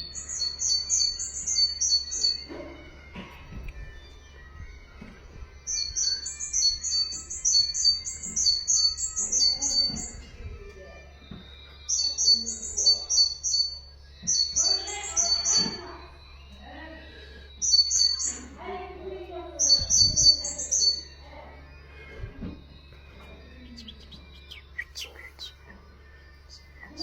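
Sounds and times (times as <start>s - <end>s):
songbird singing: 0.0s - 27.0s.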